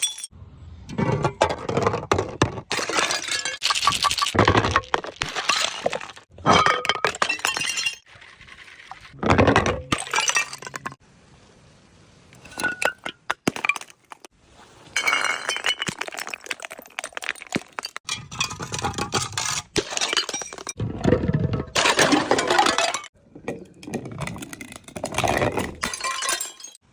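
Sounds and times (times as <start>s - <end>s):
glass bottles breaking: 0.0s - 0.3s, 1.6s - 8.1s, 9.1s - 11.0s, 12.4s - 14.3s, 14.9s - 26.8s
glass shards clinking: 0.0s - 0.3s, 25.6s - 26.8s.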